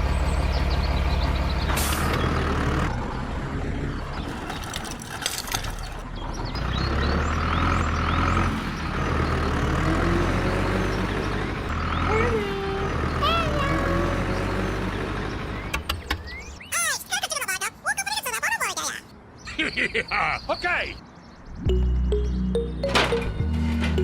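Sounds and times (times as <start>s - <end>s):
rattling clicks: 4.1s - 6.0s.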